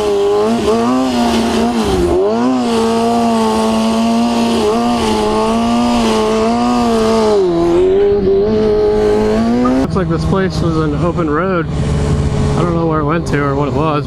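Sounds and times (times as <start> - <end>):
motorcycle engine running: 0.0 - 14.0
wind rushing: 4.9 - 13.0.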